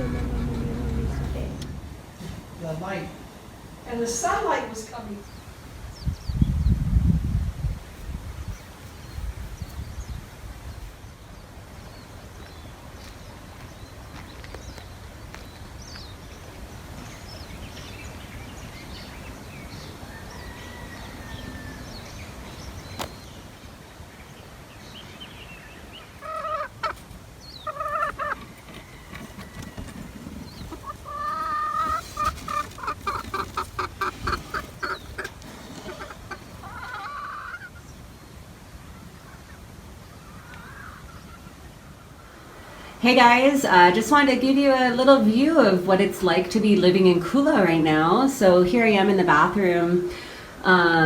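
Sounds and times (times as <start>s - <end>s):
low steady rumble: 0.0s - 4.2s
birds calling: 0.0s - 6.9s, 8.3s - 51.0s.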